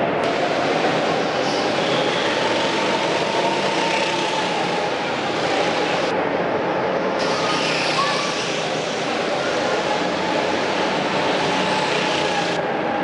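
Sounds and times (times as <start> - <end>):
vehicle engines running: 0.0 - 6.1, 7.2 - 12.7.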